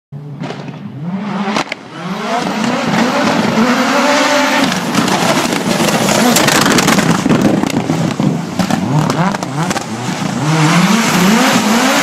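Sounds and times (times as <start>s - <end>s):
turbocharged car engine accelerating: 0.8s - 12.0s
exhaust pops: 4.6s - 10.4s.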